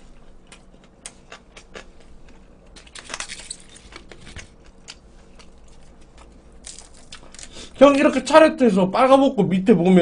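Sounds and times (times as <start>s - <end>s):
person chewing: 0.0s - 2.8s, 3.8s - 7.7s.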